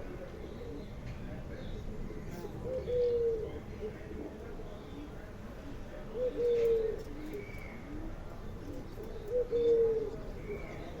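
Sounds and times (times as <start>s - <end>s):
dove cooing: 2.6s - 4.4s, 6.1s - 11.0s.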